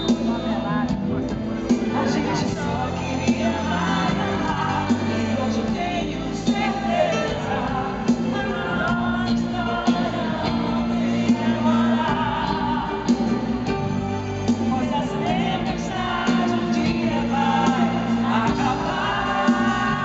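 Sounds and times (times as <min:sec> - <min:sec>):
bass: 0:00.0 - 0:20.0
drums beating steadily: 0:00.0 - 0:20.0
live band playing pop ballad: 0:00.0 - 0:20.0
person singing: 0:00.0 - 0:20.0.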